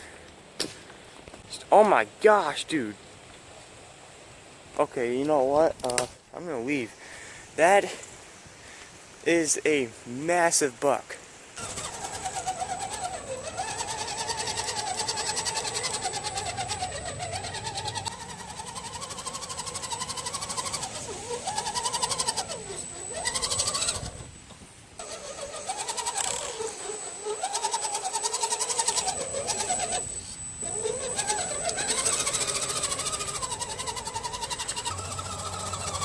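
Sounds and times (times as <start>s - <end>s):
high electronic whine: 11.6s - 36.0s
toy car motor whining: 11.6s - 36.0s.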